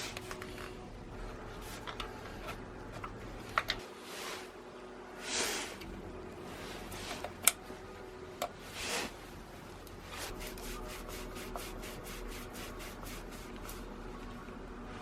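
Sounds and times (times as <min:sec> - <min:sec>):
short rubbing strokes: 0:10.0 - 0:14.0.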